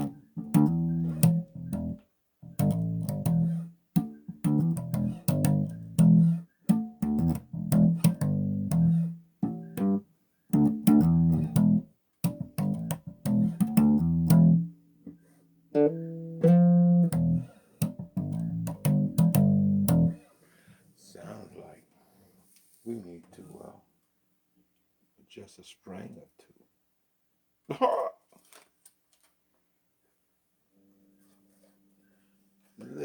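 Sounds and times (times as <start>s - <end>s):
bass guitar plucked notes: 0.0s - 14.7s, 15.8s - 20.2s.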